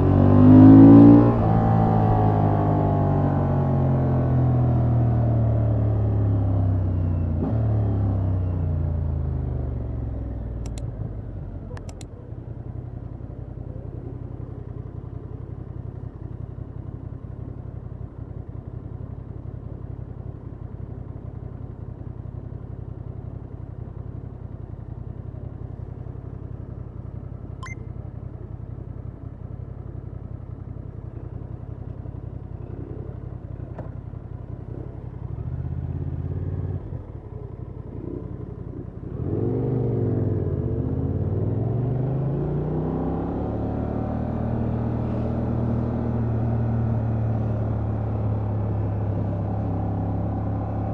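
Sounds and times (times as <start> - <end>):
motorcycle engine: 0.0 - 50.9
sharp clicks: 10.6 - 10.9, 11.8 - 12.1.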